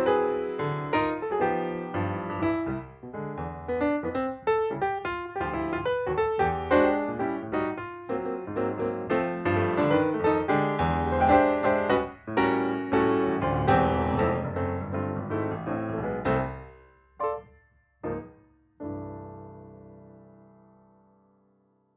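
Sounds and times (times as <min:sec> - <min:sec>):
piano notes: 0:00.0 - 0:21.4.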